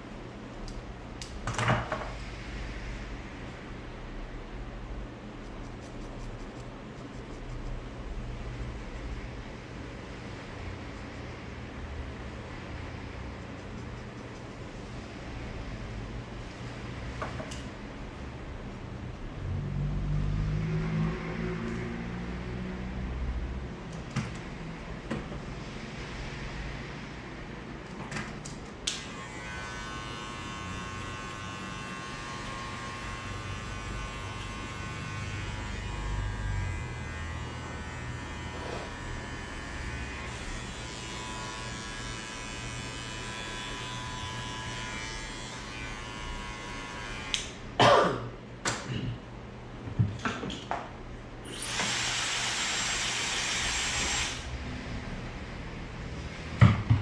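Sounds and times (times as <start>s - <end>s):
electric hair clippers buzzing: 28.9s - 47.6s, 51.6s - 54.5s.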